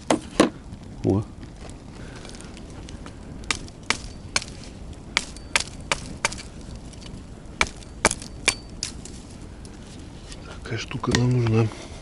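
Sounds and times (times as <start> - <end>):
wood being chopped: 0.0 - 0.5, 3.4 - 6.5, 7.6 - 9.1.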